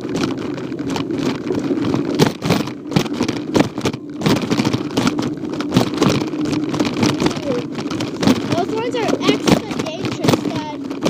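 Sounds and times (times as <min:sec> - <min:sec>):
bicycle rolling rumble: 0:00.0 - 0:11.0
bike rattling over bumps: 0:00.0 - 0:11.0.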